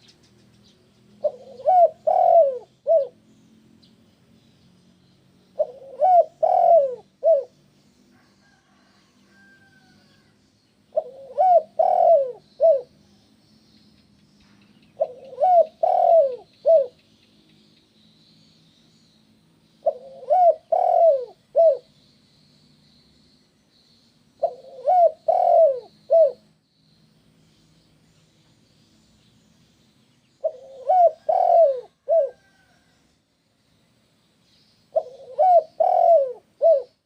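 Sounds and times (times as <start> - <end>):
faint high chirping: 0.0 - 37.0
dove cooing: 1.2 - 3.2, 5.6 - 7.6, 10.9 - 13.0, 15.0 - 17.0, 19.8 - 21.9, 24.4 - 26.5, 30.4 - 32.8, 34.9 - 37.0.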